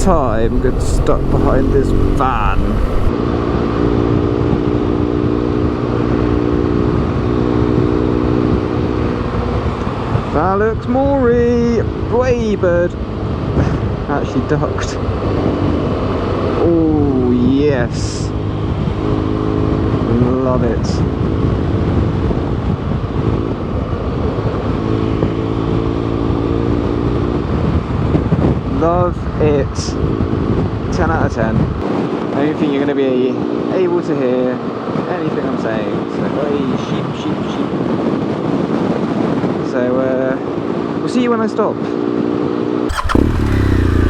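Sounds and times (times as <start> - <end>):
motorcycle engine running: 0.0 - 3.1, 42.9 - 44.0
wind rumble on microphone: 0.0 - 3.1, 18.6 - 33.2, 34.5 - 40.0.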